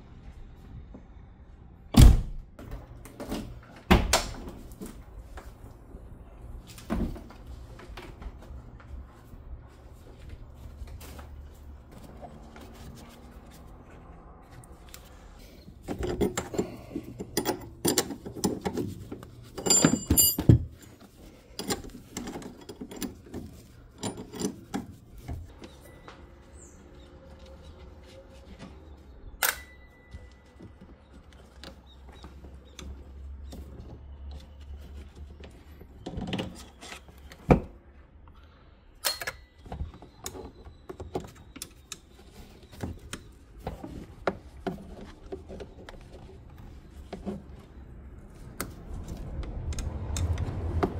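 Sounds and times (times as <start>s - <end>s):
tools clicking and rattling: 15.8s - 25.0s
metal parts clanking: 15.9s - 21.0s
ringing metallic clank: 19.6s - 20.6s.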